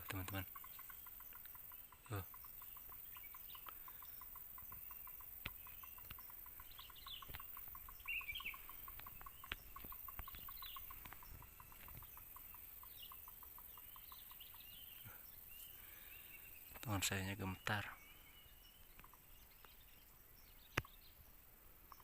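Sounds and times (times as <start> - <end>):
faint clicks: 0.0 - 15.1
high bird chirps: 0.0 - 21.2.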